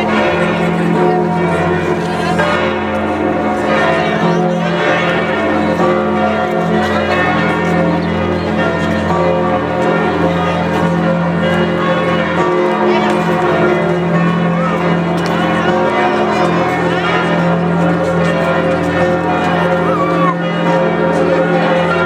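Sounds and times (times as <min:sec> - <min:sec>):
church bells pealing: 0:00.0 - 0:22.0.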